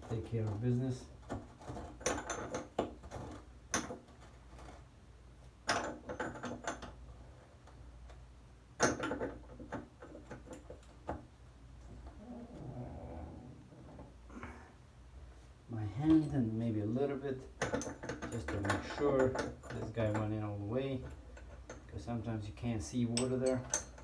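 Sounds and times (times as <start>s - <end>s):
metallic clicks and knocks: 17.5s - 20.4s, 23.1s - 24.0s.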